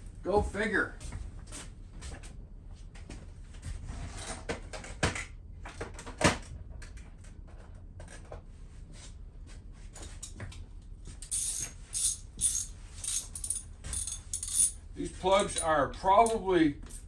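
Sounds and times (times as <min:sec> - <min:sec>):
hand tools clinking on engine: 0:11.2 - 0:17.0.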